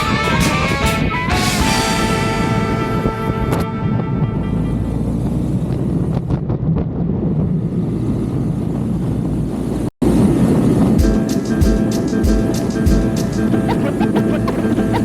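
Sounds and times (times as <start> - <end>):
wind rushing over microphone: 5.3 - 11.0
motorcycle rumbling: 12.4 - 15.0.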